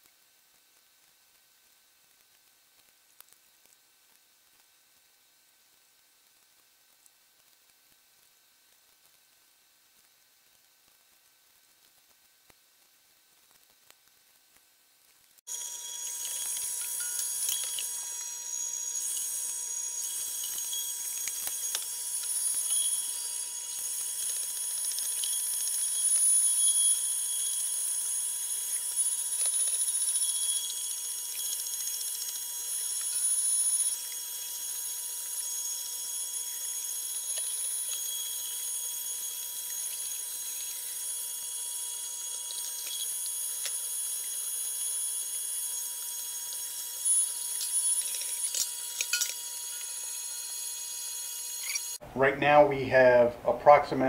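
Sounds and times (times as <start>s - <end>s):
electric meat grinder whining: 15.5s - 52.0s.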